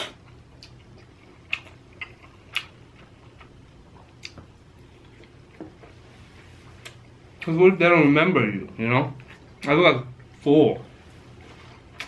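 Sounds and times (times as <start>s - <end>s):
mouth clicks while chewing: 1.5s - 2.8s.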